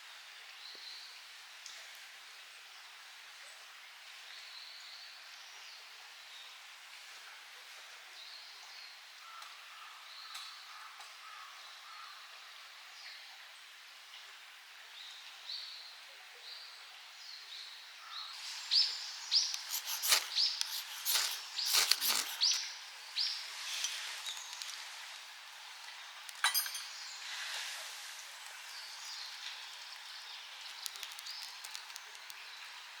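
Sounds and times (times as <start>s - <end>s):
small birds chirping: 17.5s - 24.9s, 28.5s - 32.8s.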